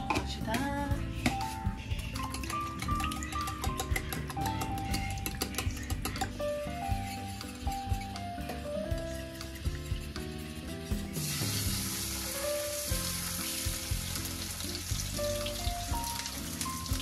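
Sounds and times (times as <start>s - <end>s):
background music with simple melody: 0.0s - 17.0s
food sizzling in frying: 8.9s - 17.0s.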